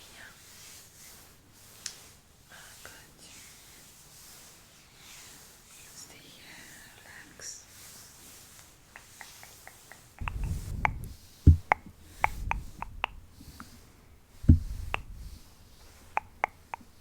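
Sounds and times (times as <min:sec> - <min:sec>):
small clicks and taps: 0:09.0 - 0:13.8, 0:14.4 - 0:17.0
sharp knocks: 0:10.2 - 0:13.5, 0:14.4 - 0:16.9
muffled low rumbling: 0:10.2 - 0:13.6, 0:14.4 - 0:15.8.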